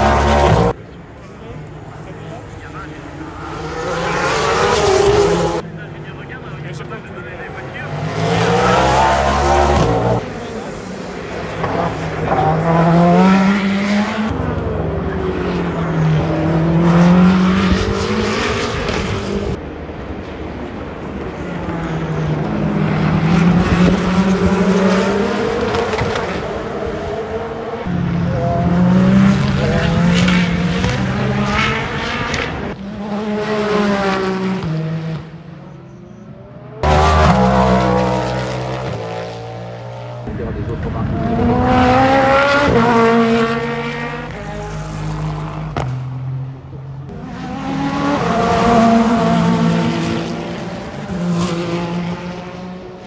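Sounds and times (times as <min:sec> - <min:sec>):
racing car engines passing: 0:00.0 - 0:53.0.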